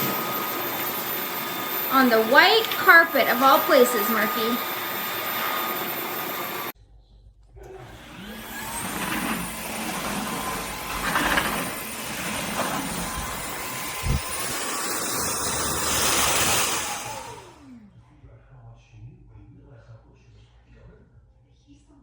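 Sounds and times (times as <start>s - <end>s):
vacuum mop motor whine: 0.0s - 6.8s, 7.6s - 17.9s.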